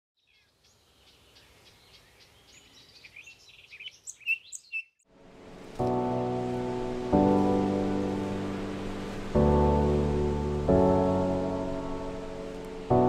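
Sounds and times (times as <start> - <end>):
birds chirping and trilling: 0.2 - 5.0
music with sustained chords: 5.1 - 13.0.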